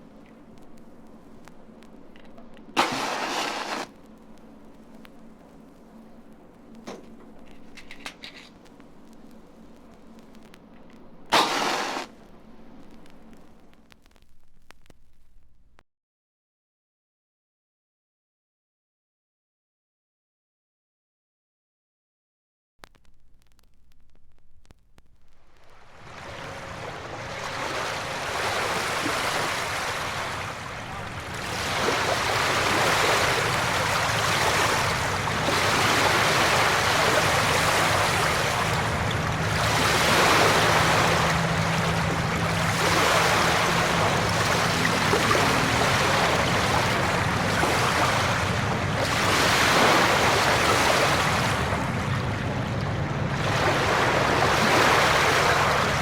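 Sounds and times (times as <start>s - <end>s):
faint low hum: 0.0s - 15.8s, 22.8s - 28.4s.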